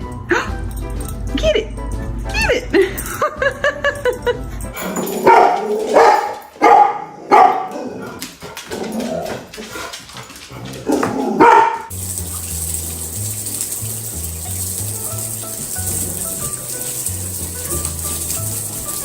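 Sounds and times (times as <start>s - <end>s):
background music: 0.0s - 7.0s, 11.9s - 19.0s
dog barking: 5.2s - 8.2s, 10.9s - 11.9s.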